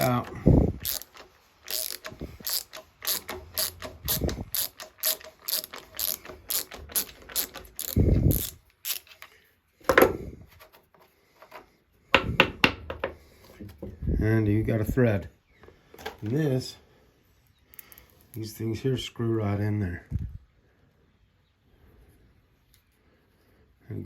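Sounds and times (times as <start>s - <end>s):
ratchet wrench clicking: 0.0s - 9.1s.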